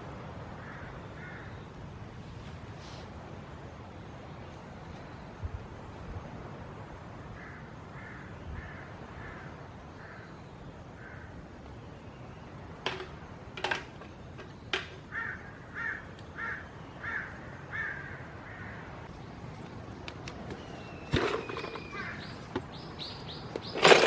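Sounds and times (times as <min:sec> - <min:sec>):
crow cawing: 0:00.6 - 0:01.6, 0:07.3 - 0:10.3, 0:11.0 - 0:11.4, 0:15.0 - 0:19.0.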